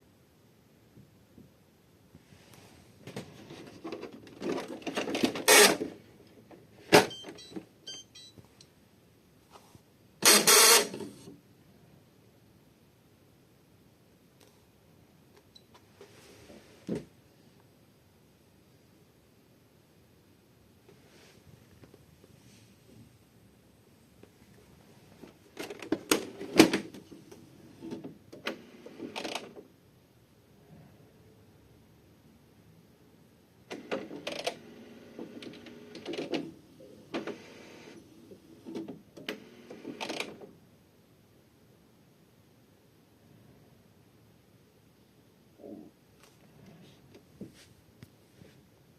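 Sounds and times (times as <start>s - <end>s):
printer mechanism clattering: 3.2s - 6.0s, 27.8s - 29.6s, 33.7s - 36.5s, 37.1s - 37.6s, 38.6s - 40.4s
printer motor and gear whirring: 37.1s - 38.0s, 38.7s - 40.3s.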